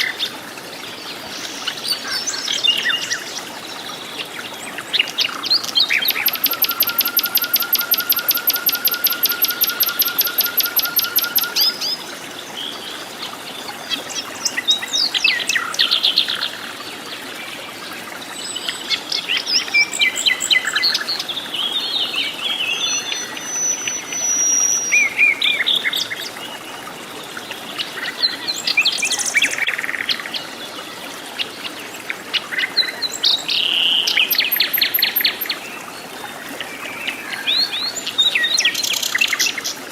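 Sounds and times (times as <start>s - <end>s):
bird trilling: 5.8s - 11.9s
bird chirps and whistles: 5.8s - 12.0s, 34.2s - 35.5s.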